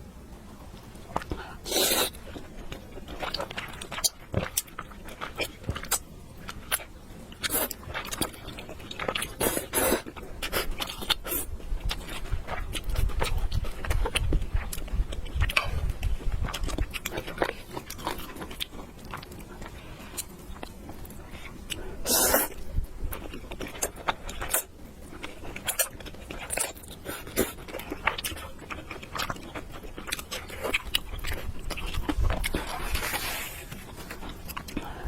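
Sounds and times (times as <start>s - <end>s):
person chewing noodles: 1.1s - 35.0s.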